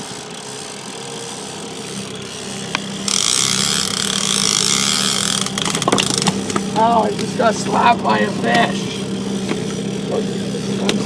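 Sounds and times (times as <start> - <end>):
outboard motor running: 0.0 - 11.0
sharp clicks: 2.6 - 11.0.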